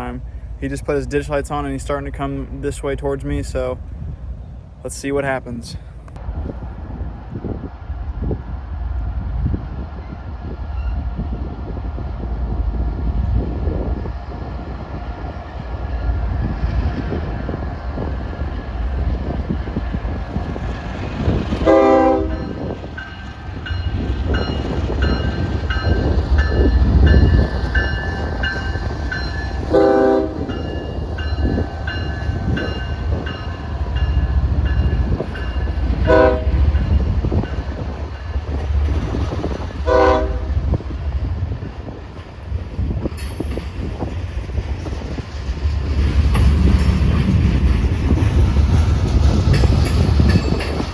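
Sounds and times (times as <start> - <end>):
locomotive engine rumble: 0.0 - 50.9
locomotive horn blasts: 21.6 - 22.6, 29.7 - 30.6, 36.1 - 36.6, 39.8 - 40.6
locomotive bell ringing: 22.2 - 37.6.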